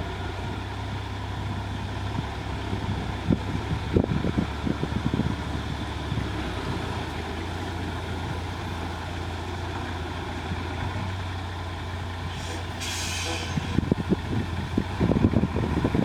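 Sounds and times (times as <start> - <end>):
diesel engine droning: 0.0 - 16.0
short hiss: 12.3 - 13.8.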